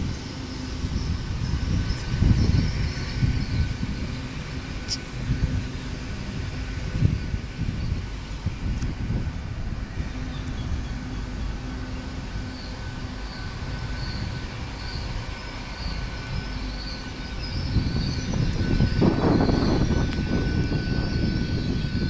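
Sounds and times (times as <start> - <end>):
train engines rumbling with whine: 0.0 - 22.0.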